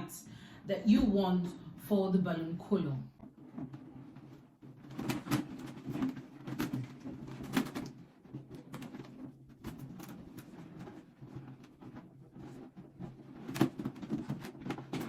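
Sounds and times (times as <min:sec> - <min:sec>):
balloons rubbing and squeaking: 0:03.2 - 0:15.0.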